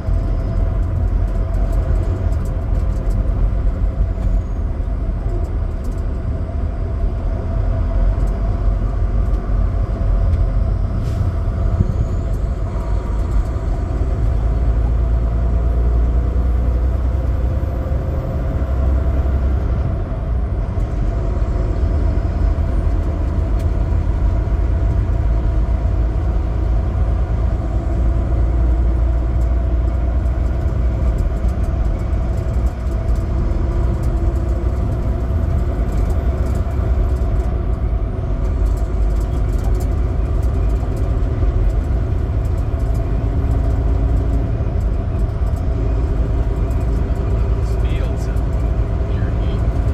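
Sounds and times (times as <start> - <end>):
diesel truck engine running: 0.0 - 49.9
road noise: 0.0 - 49.9.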